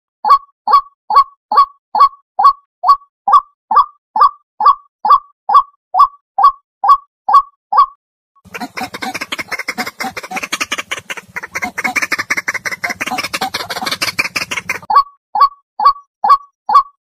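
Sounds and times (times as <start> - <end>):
waterhen harsh croaking call: 8.5 - 15.0.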